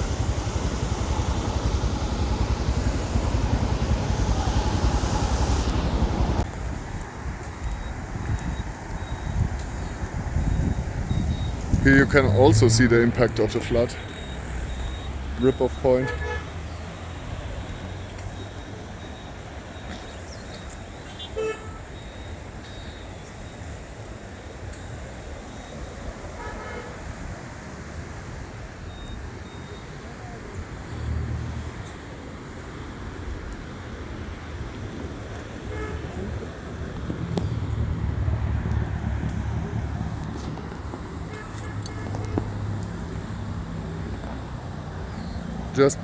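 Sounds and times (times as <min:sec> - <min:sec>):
motorcycle engine: 0:00.0 - 0:06.4
wind buffeting microphone: 0:00.0 - 0:13.5
road traffic noise: 0:00.0 - 0:46.0
vehicle horn toot: 0:15.5 - 0:16.6, 0:21.1 - 0:22.0, 0:26.4 - 0:27.2, 0:35.7 - 0:36.2, 0:41.3 - 0:42.5.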